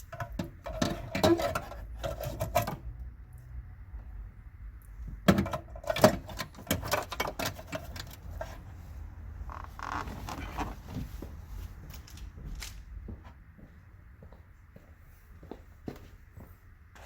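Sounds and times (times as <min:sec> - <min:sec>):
sharp clicks and knocks: 0:00.0 - 0:03.1, 0:05.1 - 0:08.4
soft scraping rustle: 0:08.2 - 0:12.9.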